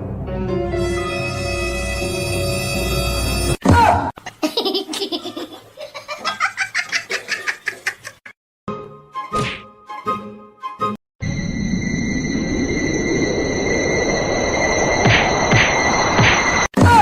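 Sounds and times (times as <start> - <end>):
music: 0.0 - 3.6, 8.7 - 11.0
rapid high-pitched laughter: 4.2 - 8.3
loud swooping sound: 12.2 - 16.7.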